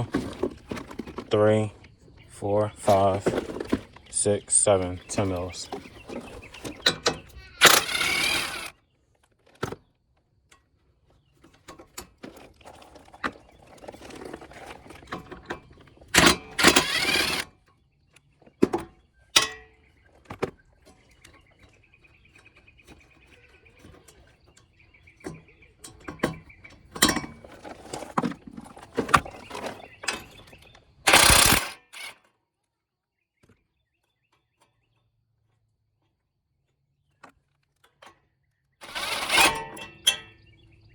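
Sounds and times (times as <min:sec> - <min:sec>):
power tool running: 0:04.8 - 0:08.7, 0:16.1 - 0:17.5, 0:31.1 - 0:32.2, 0:38.8 - 0:40.1
clatter of tools and bolts: 0:05.1 - 0:08.7, 0:11.4 - 0:17.6, 0:23.8 - 0:32.4, 0:37.2 - 0:40.5.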